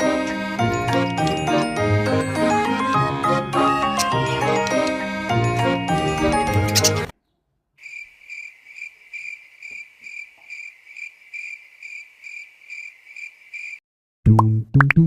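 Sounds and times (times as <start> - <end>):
cricket chirping: 7.8 - 13.8.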